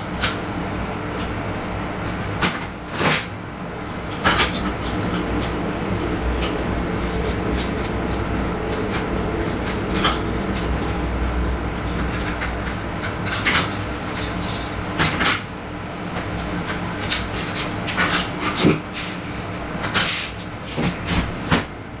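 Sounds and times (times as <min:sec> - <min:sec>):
low hum: 0:03.4 - 0:15.7.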